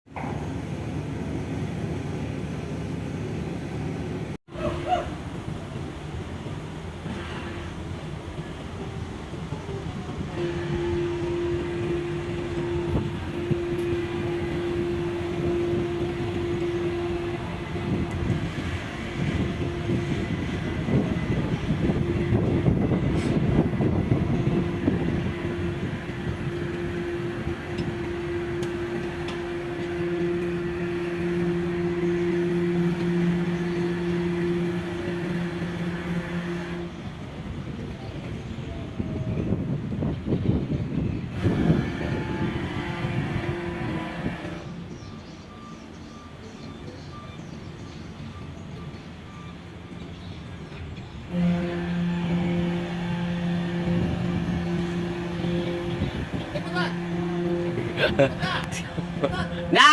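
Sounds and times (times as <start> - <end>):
low uneven rumble: 0.2 - 45.0, 51.3 - 59.9
ship's horn blast: 0.5 - 38.4, 39.3 - 44.9, 51.3 - 59.9
lower horn tone: 9.6 - 37.3, 41.3 - 44.8, 51.3 - 59.9.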